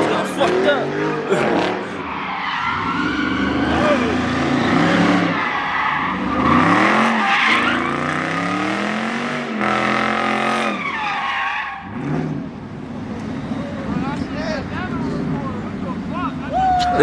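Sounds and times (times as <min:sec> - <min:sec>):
tyres squealing: 0:00.0 - 0:08.5
car engine revving: 0:00.0 - 0:16.6.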